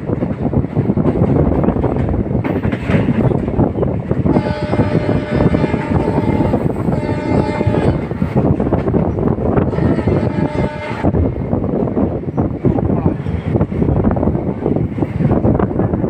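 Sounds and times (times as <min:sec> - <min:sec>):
passenger train rumbling: 0:00.0 - 0:16.0
locomotive horn: 0:04.3 - 0:08.2, 0:09.6 - 0:11.2.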